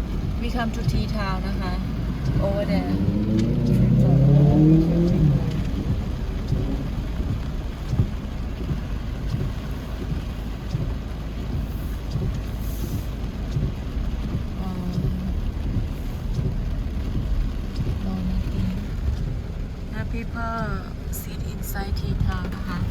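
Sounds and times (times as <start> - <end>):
wind buffeting microphone: 0.0 - 12.4
street noise: 0.0 - 22.9.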